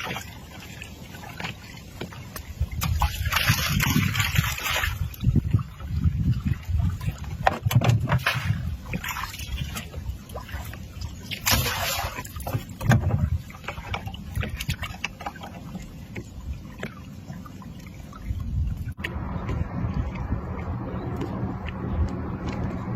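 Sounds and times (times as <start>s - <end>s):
rushing water splash: 0.0s - 15.9s
boat engine low rumble: 0.0s - 22.9s
water sloshing: 0.0s - 22.9s.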